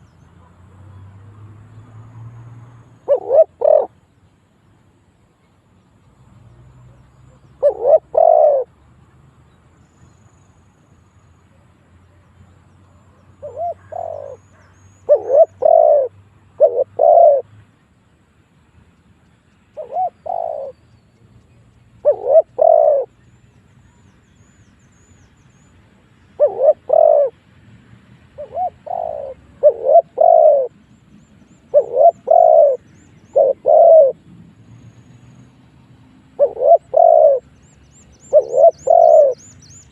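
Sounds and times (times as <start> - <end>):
dove cooing: 3.0 - 4.0, 7.6 - 8.7, 13.4 - 17.5, 19.8 - 20.8, 22.0 - 23.2, 26.4 - 27.4, 28.4 - 30.8, 31.7 - 34.2, 36.3 - 37.5, 38.2 - 39.5.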